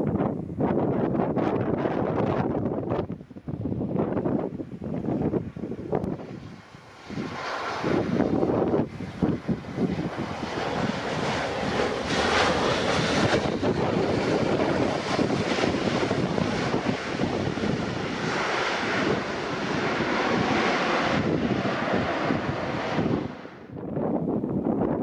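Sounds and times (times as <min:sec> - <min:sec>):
wind buffeting microphone: 0:00.0 - 0:25.0
jet engines roaring: 0:04.3 - 0:23.8.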